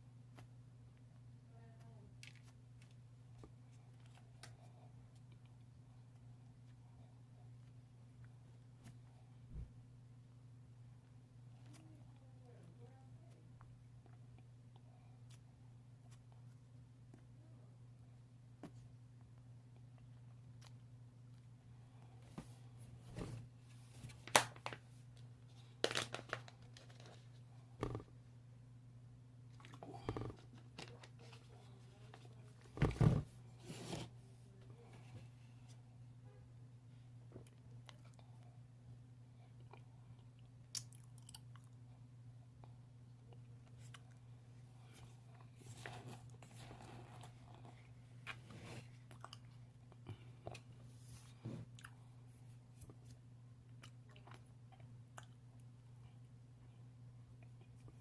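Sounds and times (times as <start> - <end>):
steady low hum: 0.0 - 58.0
chewing and crunching: 29.5 - 31.3, 39.5 - 41.8, 44.8 - 50.8, 52.9 - 56.2
person chewing crunchy food: 48.8 - 50.8.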